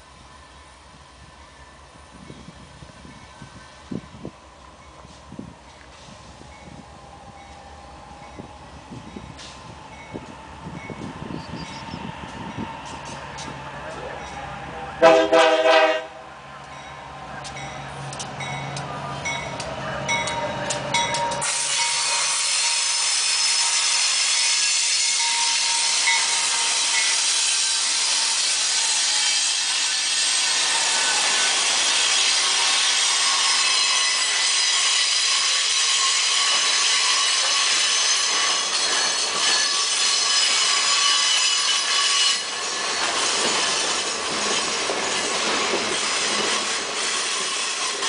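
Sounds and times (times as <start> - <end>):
steel wheels grinding on rails: 17.5 - 48.0.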